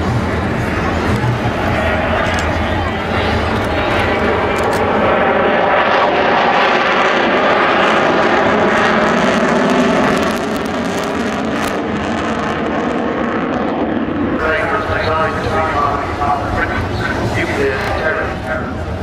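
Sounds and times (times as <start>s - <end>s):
large aircraft engine flying past: 0.0s - 19.0s.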